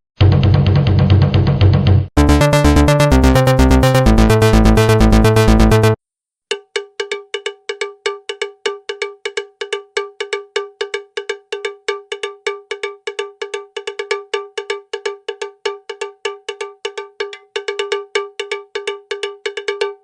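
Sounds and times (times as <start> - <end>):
cowbell-like percussion strikes: 6.5 - 20.0.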